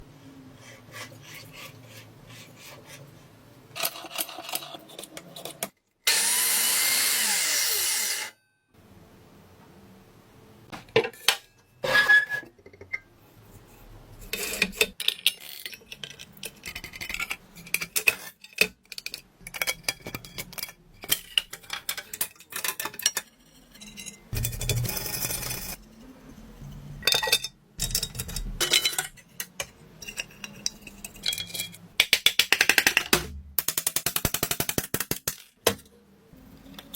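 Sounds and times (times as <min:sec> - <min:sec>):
power tool running: 0:06.1 - 0:08.3
knocks and clicks: 0:32.0 - 0:35.8.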